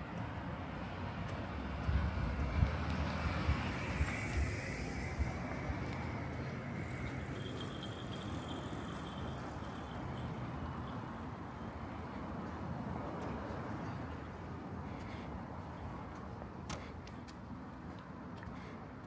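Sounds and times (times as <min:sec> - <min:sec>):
road traffic hum: 0:00.0 - 0:19.0
faint high whine: 0:03.6 - 0:11.0.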